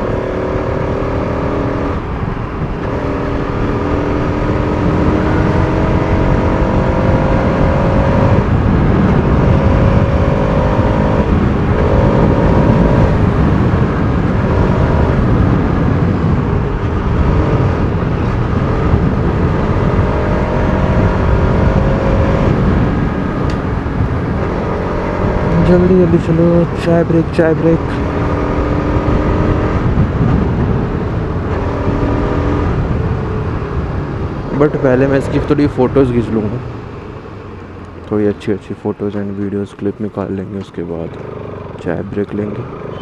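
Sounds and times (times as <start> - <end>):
motorcycle engine accelerating: 0.0 - 38.4, 40.7 - 43.0
wind and road noise: 0.0 - 43.0.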